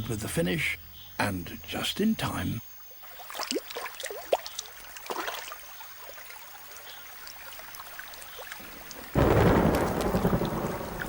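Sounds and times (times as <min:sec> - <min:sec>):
heavy rain rushing: 0:08.6 - 0:11.0
thunder rumble: 0:09.0 - 0:11.0.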